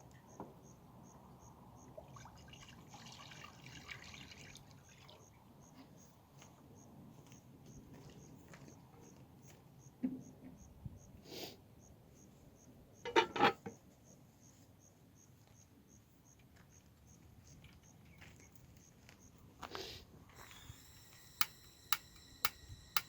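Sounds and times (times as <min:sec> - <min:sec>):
insect chirping: 0:00.3 - 0:02.0, 0:20.4 - 0:23.0.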